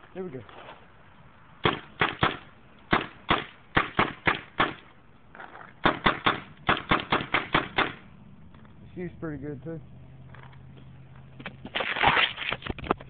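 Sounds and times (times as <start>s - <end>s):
paintball marker shots: 1.6s - 4.9s, 5.8s - 8.0s.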